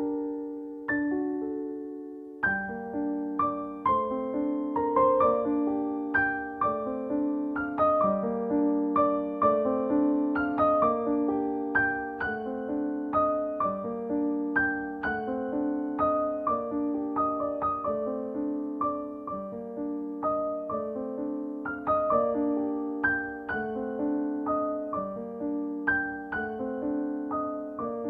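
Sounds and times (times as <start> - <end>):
slow solo piano melody: 0.0 - 28.0.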